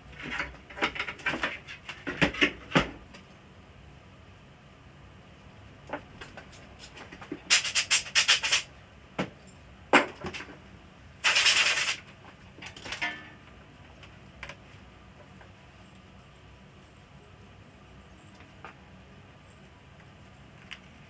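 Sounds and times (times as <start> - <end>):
harsh rasping noise: 7.5 - 8.7, 11.2 - 12.0.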